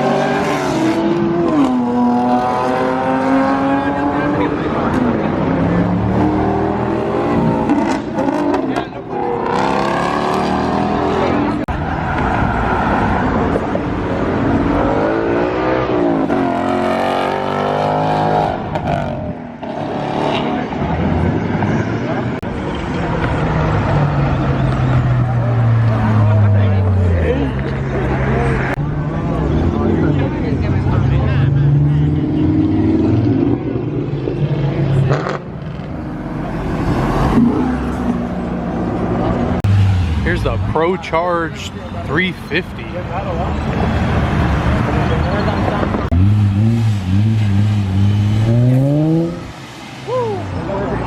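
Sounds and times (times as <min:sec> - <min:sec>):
car passing loudly: 0:00.0 - 0:51.0
muscle car engines revving: 0:00.0 - 0:51.0
car engine revving hard: 0:05.8 - 0:11.6, 0:45.8 - 0:49.7.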